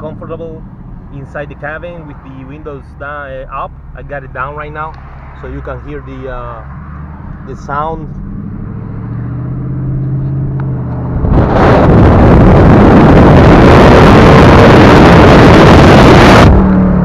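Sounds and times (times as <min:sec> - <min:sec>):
loud car exhaust: 0:06.6 - 0:17.0.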